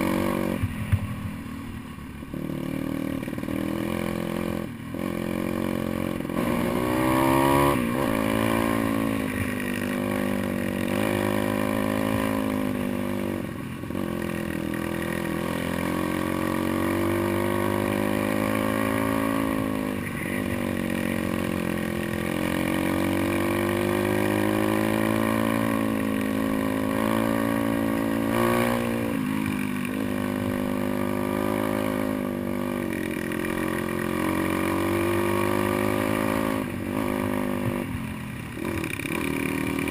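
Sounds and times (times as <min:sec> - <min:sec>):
pit bike engine revving: 0:00.0 - 0:00.9, 0:02.3 - 0:39.9.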